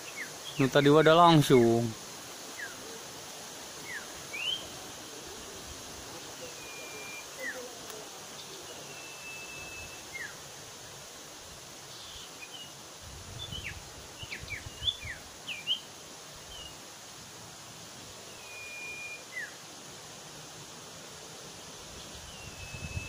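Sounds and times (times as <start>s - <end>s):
outdoor ambience: 0.0s - 23.0s
long level bird whistle: 2.4s - 2.9s, 3.7s - 5.6s, 6.4s - 7.7s, 8.3s - 11.0s, 11.9s - 12.8s, 13.4s - 16.8s, 18.2s - 19.7s, 21.5s - 23.0s.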